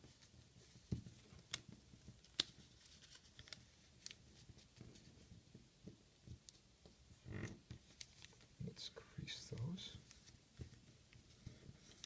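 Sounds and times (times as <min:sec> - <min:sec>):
paper crackle: 0:00.0 - 0:05.2, 0:07.8 - 0:08.5, 0:10.0 - 0:12.0
paper rustling and crinkling: 0:00.0 - 0:05.6, 0:07.8 - 0:08.5, 0:10.0 - 0:12.0
light paper ticks: 0:01.4 - 0:04.8.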